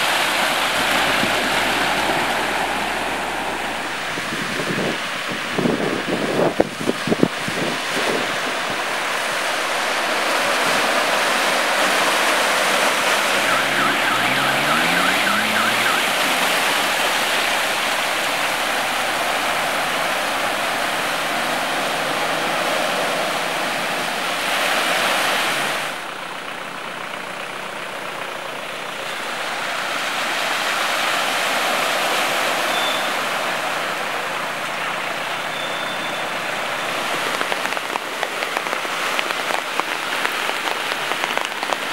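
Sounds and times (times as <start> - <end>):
traffic splashing through water: 0.0 - 41.9
engine rising in pitch: 13.1 - 16.9.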